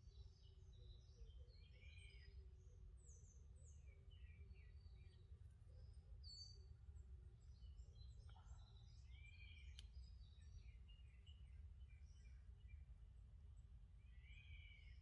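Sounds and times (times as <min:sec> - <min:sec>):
faint click: 0:09.6 - 0:10.1.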